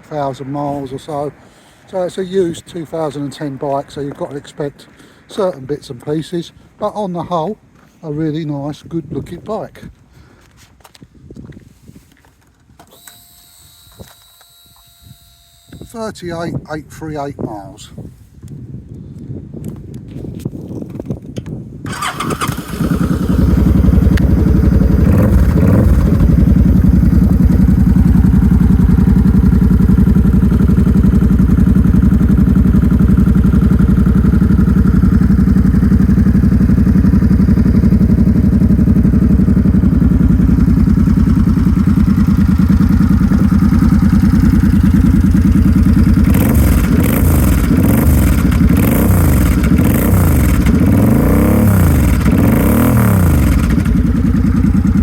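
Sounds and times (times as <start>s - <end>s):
motorcycle throttle blips: 21.4s - 55.0s
motorcycle engine idling: 21.9s - 55.0s.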